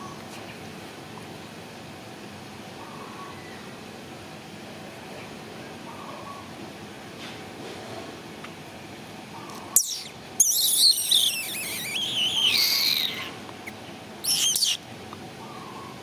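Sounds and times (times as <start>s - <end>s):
bird singing warbling phrases: 9.4s - 14.8s.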